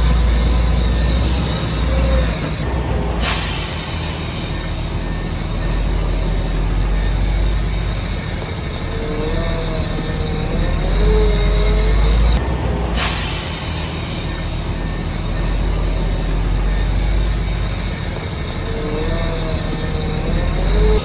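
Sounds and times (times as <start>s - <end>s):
high wavering squeal: 0.0s - 2.6s, 3.2s - 12.4s, 13.4s - 21.0s
diesel engine drone: 0.0s - 21.0s
bright hiss: 3.2s - 10.0s, 13.0s - 19.0s.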